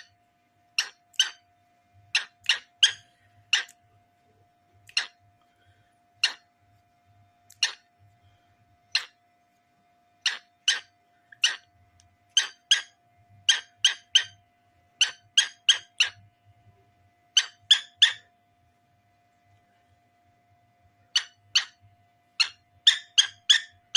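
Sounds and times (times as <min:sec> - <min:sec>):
cockatiel chirping: 0:00.8 - 0:01.4, 0:02.1 - 0:03.8, 0:04.9 - 0:05.2, 0:06.2 - 0:06.4, 0:07.5 - 0:07.9, 0:08.9 - 0:09.2, 0:10.2 - 0:11.7, 0:12.3 - 0:14.4, 0:15.0 - 0:16.2, 0:17.4 - 0:18.3, 0:21.1 - 0:21.8, 0:22.4 - 0:23.9.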